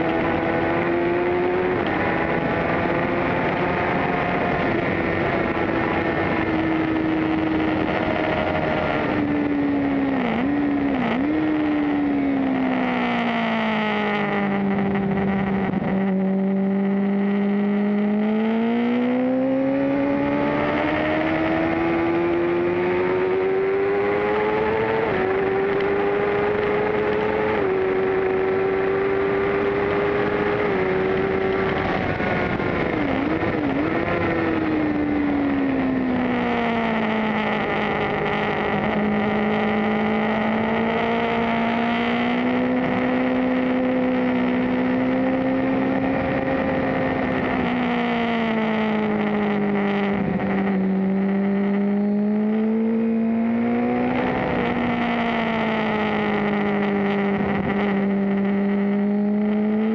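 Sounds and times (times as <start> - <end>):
wind rush: 0.0 - 12.5, 18.9 - 40.0
motorcycle engine revving high: 0.0 - 59.9.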